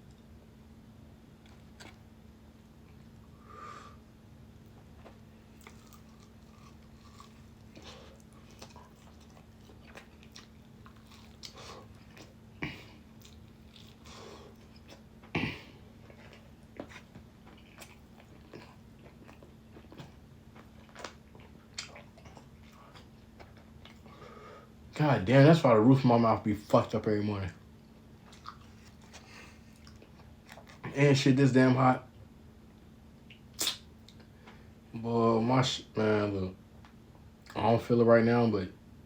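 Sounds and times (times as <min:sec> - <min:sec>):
person chewing: 0:01.4 - 0:02.0, 0:05.0 - 0:24.1, 0:28.2 - 0:30.9
mouth clicks and smacks: 0:33.3 - 0:34.3.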